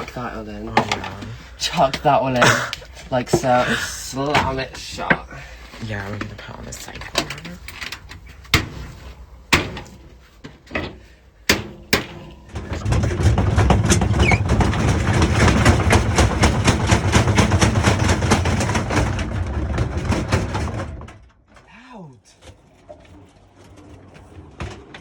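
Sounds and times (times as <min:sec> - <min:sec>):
washing machine rattling and rumbling: 0:00.0 - 0:25.0
washing machine clicks and knocks: 0:03.2 - 0:05.4, 0:09.5 - 0:21.2.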